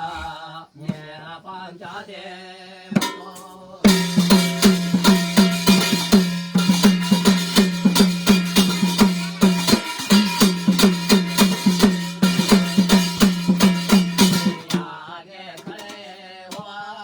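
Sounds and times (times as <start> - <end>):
steady drum rhythm: 3.0 - 14.9.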